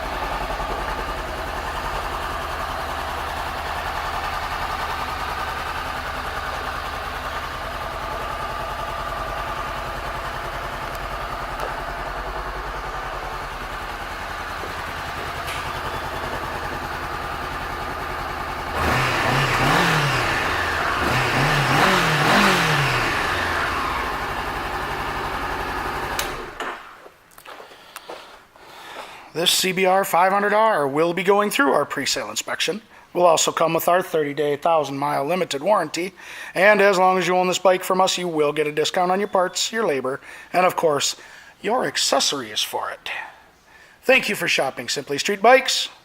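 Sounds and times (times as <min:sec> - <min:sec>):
motorcycle engine idling and revving: 0:00.0 - 0:27.0.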